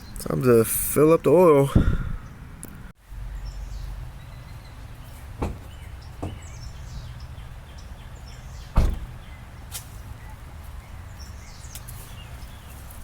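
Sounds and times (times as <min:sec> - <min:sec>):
short knocks: 0:05.4 - 0:06.5.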